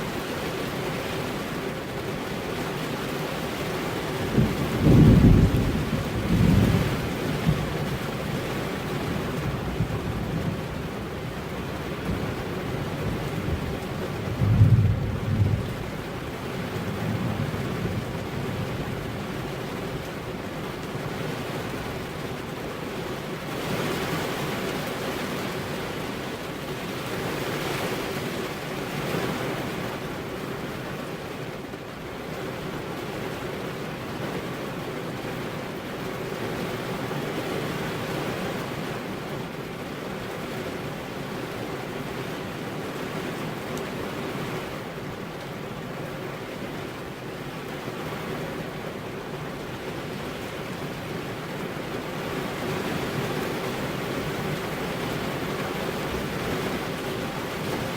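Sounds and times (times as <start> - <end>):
steady rainfall: 0.0 - 57.9
low thunder rumbles: 4.2 - 19.4.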